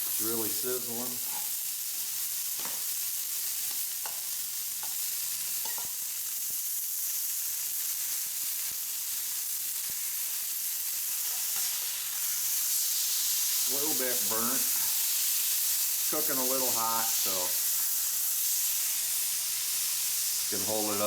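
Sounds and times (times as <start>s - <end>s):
patty sizzling in a pan: 0.0s - 21.0s.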